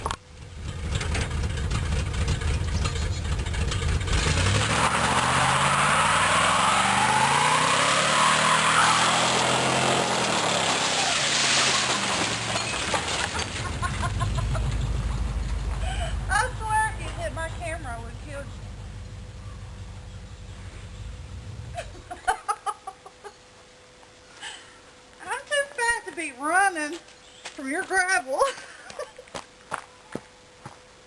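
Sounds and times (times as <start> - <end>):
tires spinning on gravel: 0.0 - 17.3
truck engine revving: 0.4 - 21.8.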